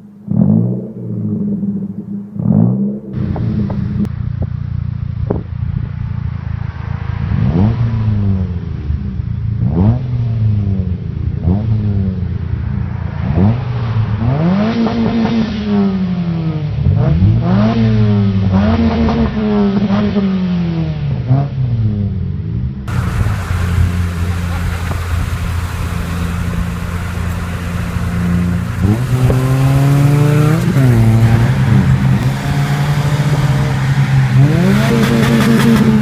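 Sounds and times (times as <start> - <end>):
car engine revving: 0.0 - 4.1, 22.9 - 36.0.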